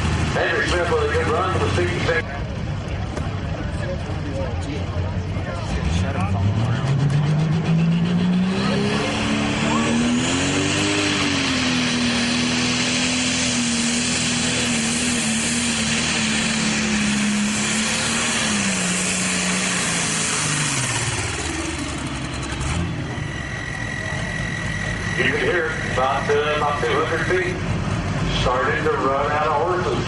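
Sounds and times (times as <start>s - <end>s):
tractor diesel engine running flat out: 0.0s - 30.0s.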